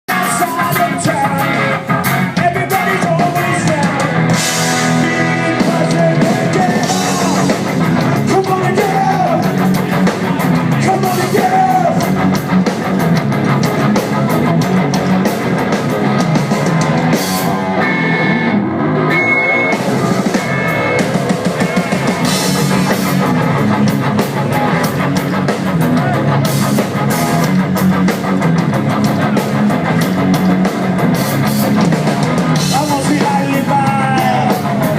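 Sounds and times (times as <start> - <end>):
person singing: 0.1 - 12.1, 32.6 - 34.9
drum kit: 0.1 - 34.9
electric guitar: 0.1 - 34.9.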